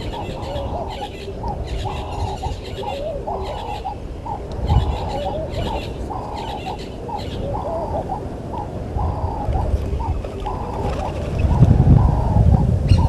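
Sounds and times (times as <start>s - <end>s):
dove cooing: 0.0s - 13.0s
steady low rumble: 0.0s - 13.0s.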